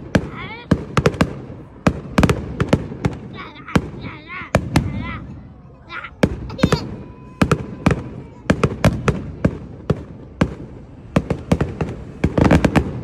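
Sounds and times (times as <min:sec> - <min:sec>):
fireworks banging: 0:00.0 - 0:05.5, 0:06.1 - 0:13.0.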